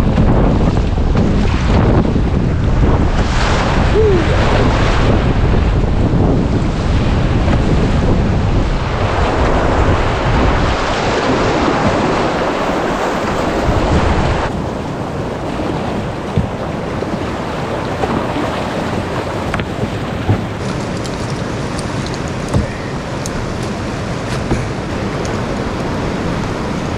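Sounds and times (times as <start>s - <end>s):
wind buffeting microphone: 0.0s - 26.9s
river rapids rushing: 3.2s - 5.2s, 9.0s - 26.9s.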